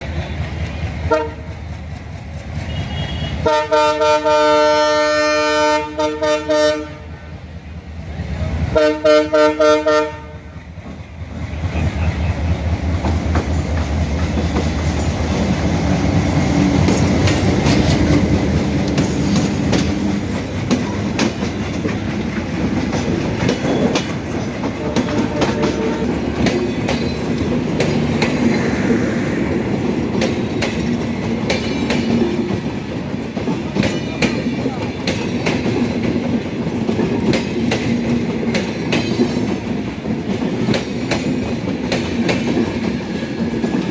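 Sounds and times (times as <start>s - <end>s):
train rumble: 0.0s - 43.9s
train wheels clacking over rail joints: 0.0s - 43.9s.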